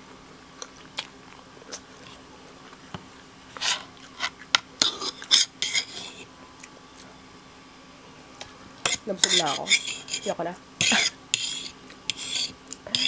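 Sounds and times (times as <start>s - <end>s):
metal fork scraping wooden plate: 3.6s - 6.2s, 8.8s - 13.0s.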